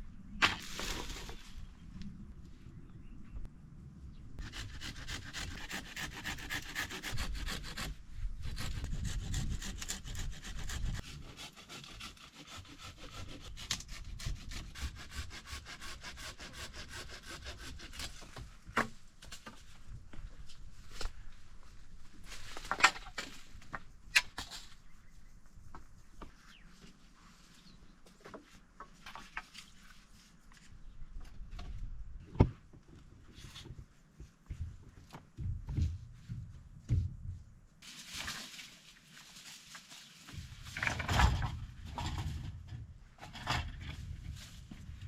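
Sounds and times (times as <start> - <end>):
hand saw rasping on wood: 4.4 - 18.1.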